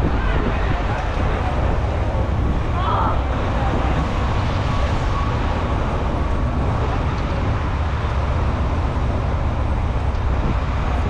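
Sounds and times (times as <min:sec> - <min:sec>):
passing vehicles rumbling: 0:00.0 - 0:11.0.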